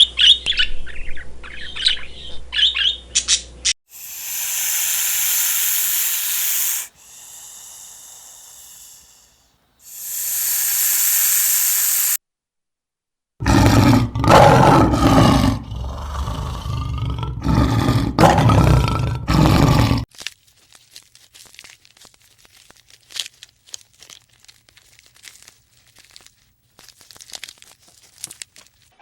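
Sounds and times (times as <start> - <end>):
large animal calling loudly: 4.0 - 9.2
faint clicking and crinkling: 20.1 - 29.0.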